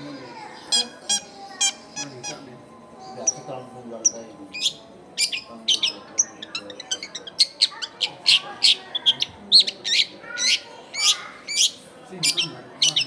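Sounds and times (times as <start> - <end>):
bird ticking notes: 4.0 - 13.0.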